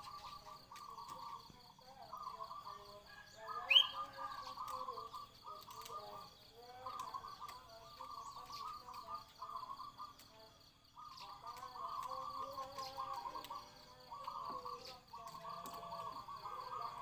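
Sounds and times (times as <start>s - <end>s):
cage birds trilling: 0.0s - 17.0s
sharp rising bird chirp: 3.7s - 4.1s.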